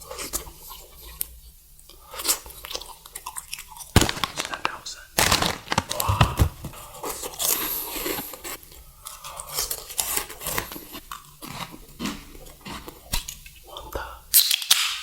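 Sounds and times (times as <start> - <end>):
crunchy biting and chewing: 9.2 - 13.5.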